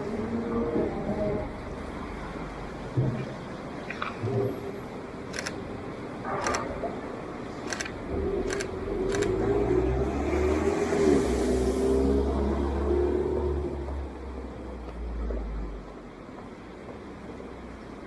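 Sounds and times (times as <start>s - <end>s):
camera shutter clicks: 5.3s - 5.6s, 7.7s - 9.4s.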